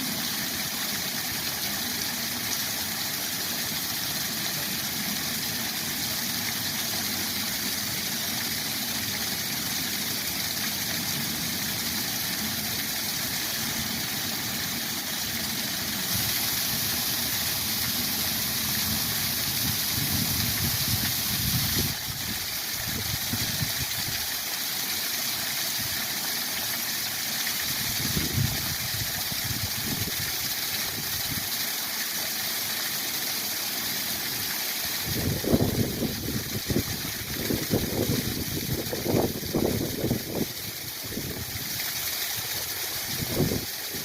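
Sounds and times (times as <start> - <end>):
waterfall roaring: 0.0 - 23.4.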